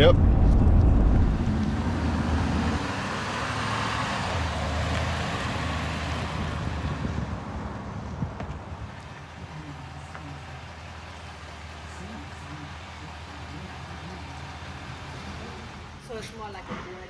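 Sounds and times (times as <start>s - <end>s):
vehicle road noise hum: 0.0s - 17.0s.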